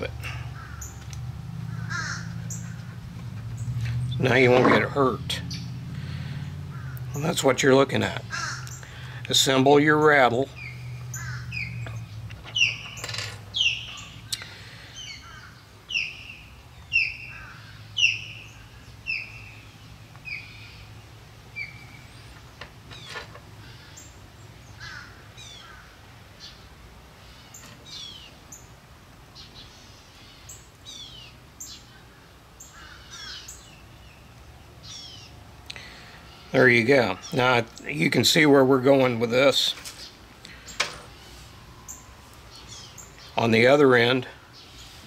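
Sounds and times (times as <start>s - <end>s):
bird harsh falling calls: 0.0s - 4.6s, 8.2s - 9.2s, 9.8s - 21.0s, 21.6s - 26.6s, 29.4s - 34.2s.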